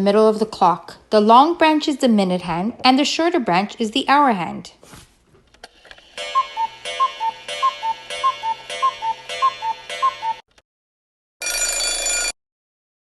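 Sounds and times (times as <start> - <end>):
clock ticking: 6.2 - 10.4
steady multi-tone sound: 6.2 - 10.4.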